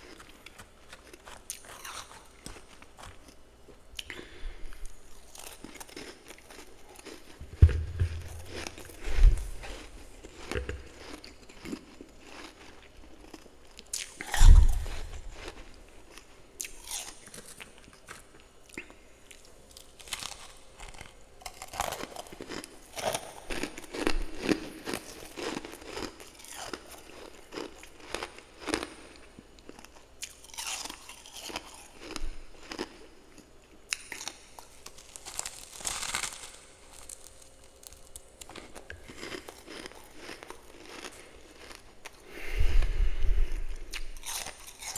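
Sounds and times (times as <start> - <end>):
crunchy chewing of frost: 0.0 - 44.9
loud thump: 7.5 - 9.5.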